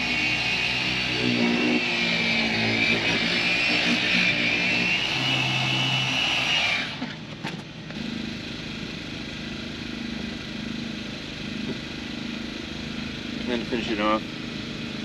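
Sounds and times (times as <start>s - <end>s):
electric polisher whining: 0.0s - 7.2s.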